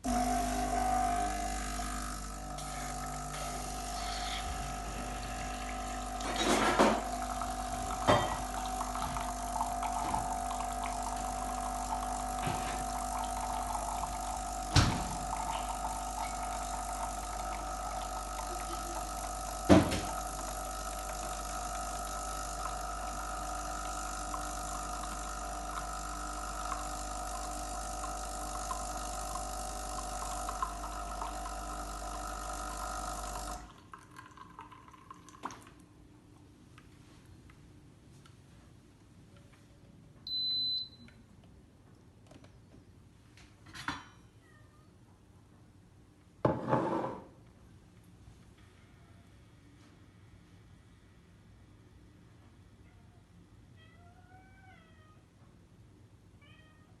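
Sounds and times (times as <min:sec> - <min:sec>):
coffee machine pump humming: 0:00.0 - 0:35.9
coffee filling cup: 0:00.1 - 0:35.9.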